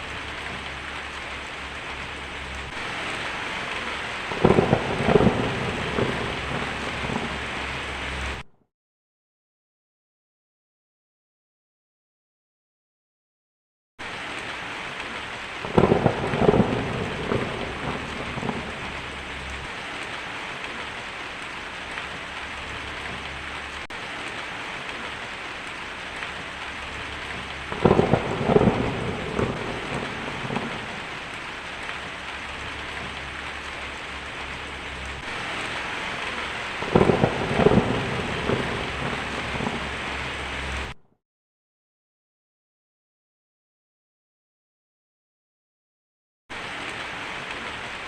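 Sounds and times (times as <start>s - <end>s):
thunder rolling: 0.0s - 8.4s, 15.6s - 20.2s, 26.8s - 41.0s
heavy rain: 0.0s - 8.5s, 14.0s - 41.0s, 46.5s - 48.0s.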